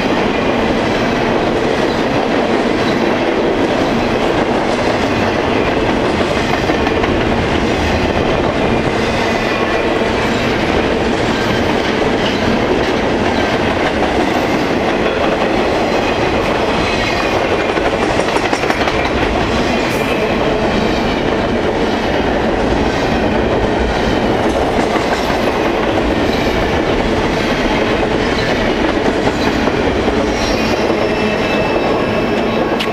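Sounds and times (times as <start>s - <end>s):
wheels clicking over rail joints: 9.6s - 32.9s.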